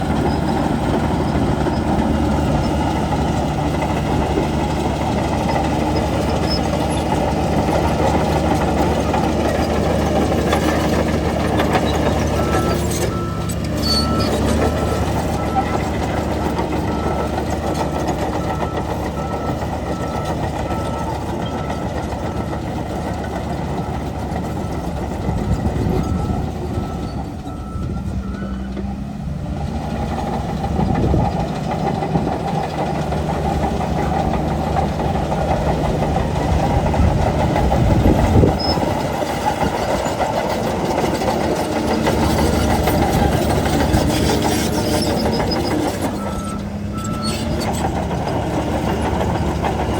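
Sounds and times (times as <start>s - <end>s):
bulldozer diesel engine working: 0.0s - 49.9s
reversing alarm beeping: 11.8s - 22.1s, 23.8s - 28.7s, 44.8s - 47.8s.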